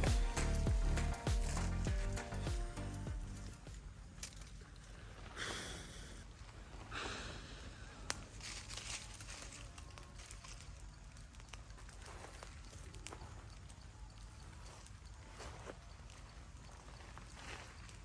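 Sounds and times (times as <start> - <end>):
low steady hum: 0.0 - 5.1
rustling and crinkling handling: 8.0 - 18.0.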